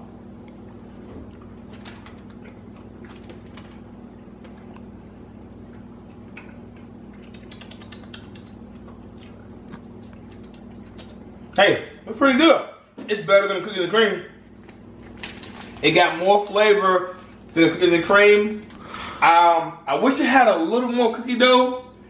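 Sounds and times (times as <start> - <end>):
steady low hum: 0.0 - 22.0
soft chewing: 0.3 - 11.6
wet mouth clicks: 5.7 - 11.6.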